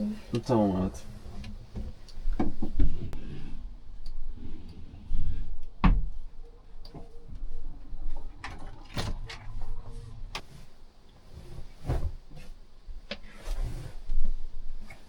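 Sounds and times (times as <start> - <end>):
knocks and thumps of handling things: 1.4 - 3.2, 5.8 - 6.2.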